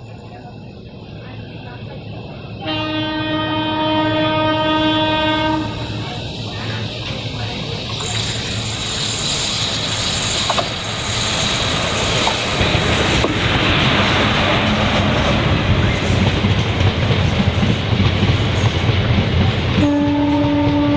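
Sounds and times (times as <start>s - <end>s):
train passing: 0.0s - 20.9s
locomotive horn chord: 2.6s - 6.2s, 19.8s - 20.9s
wheels clacking over rail joints: 6.5s - 20.9s.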